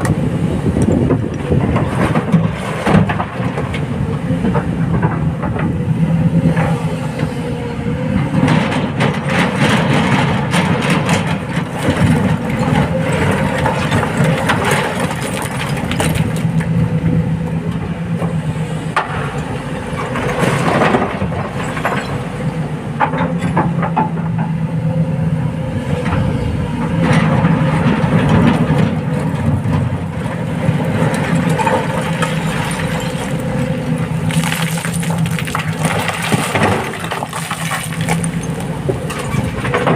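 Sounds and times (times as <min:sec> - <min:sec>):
excavator engine droning: 0:00.0 - 0:39.9
scattered clatter: 0:34.3 - 0:39.9.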